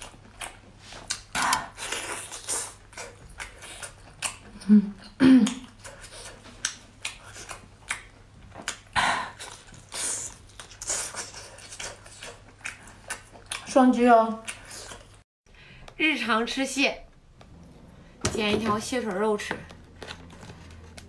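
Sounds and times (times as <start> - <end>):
person chewing prawns: 0.0 - 4.7, 5.5 - 13.7, 14.4 - 15.2.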